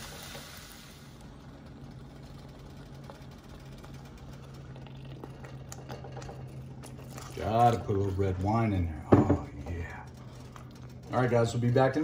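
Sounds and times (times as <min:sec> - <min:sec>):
food sizzling in a skillet: 0:00.0 - 0:01.2
steady low hum: 0:00.0 - 0:12.0.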